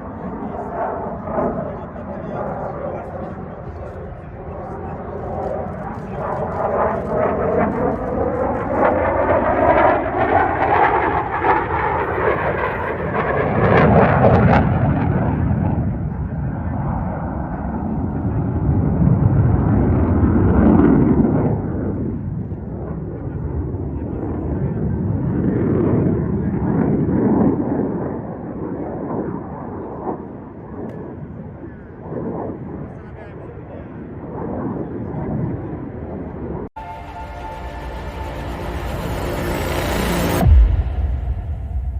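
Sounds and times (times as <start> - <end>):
jet engine whine: 0.0 - 41.9
jet rushing past: 36.8 - 41.9.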